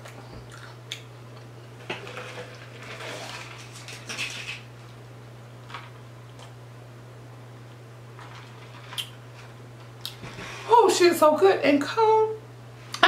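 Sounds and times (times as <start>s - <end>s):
person chewing crunchy food: 0.0s - 1.6s
steady low hum: 0.0s - 13.0s.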